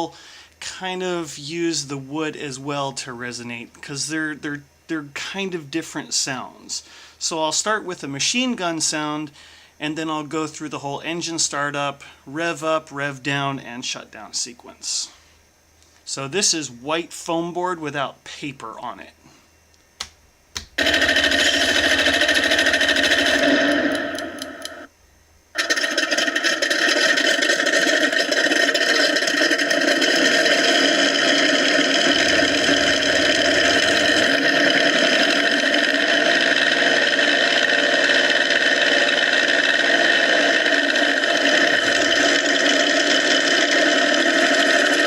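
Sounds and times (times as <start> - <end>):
rapid rattling: 20.8 - 24.9, 25.6 - 45.0
simulated warplane engine sound: 20.8 - 24.9, 26.6 - 43.1.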